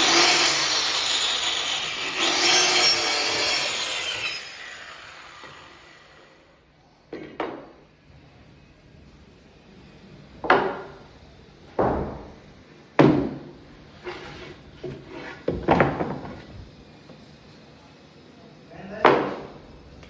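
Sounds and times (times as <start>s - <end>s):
wooden knocks and thuds: 11.8s - 12.3s, 13.0s - 13.5s, 14.8s - 16.7s.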